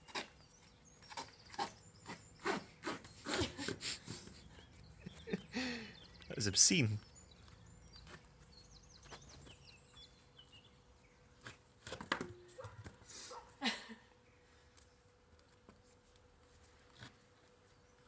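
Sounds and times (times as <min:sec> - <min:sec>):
small bird chirping: 0:00.0 - 0:03.5, 0:04.4 - 0:11.2.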